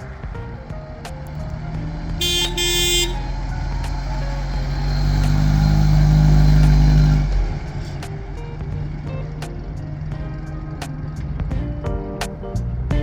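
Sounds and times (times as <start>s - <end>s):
car engine running: 0.0s - 11.9s
car horn toots: 2.2s - 3.9s.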